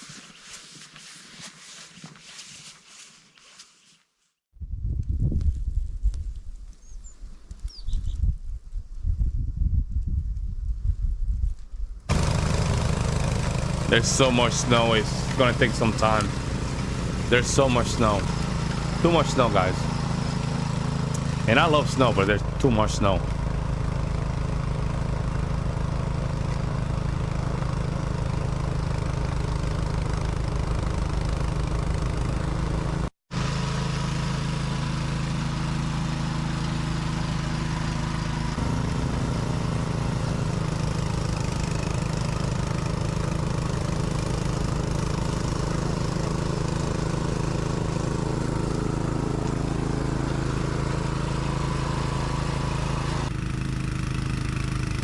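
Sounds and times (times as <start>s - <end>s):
motor engine running: 12.1s - 55.0s.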